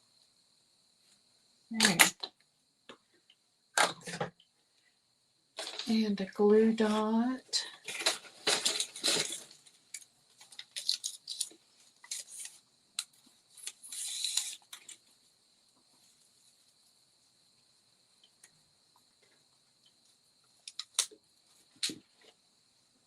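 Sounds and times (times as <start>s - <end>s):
faint hiss: 0.0s - 23.0s
paper and card crinkling: 7.7s - 9.7s, 10.3s - 12.6s, 13.6s - 15.0s.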